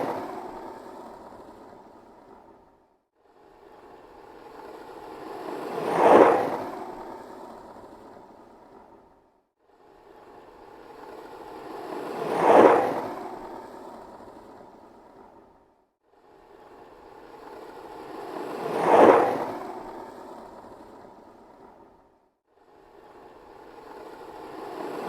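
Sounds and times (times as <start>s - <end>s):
skateboard rolling past: 0.0s - 2.5s, 4.5s - 8.0s, 11.3s - 15.4s, 17.4s - 21.8s.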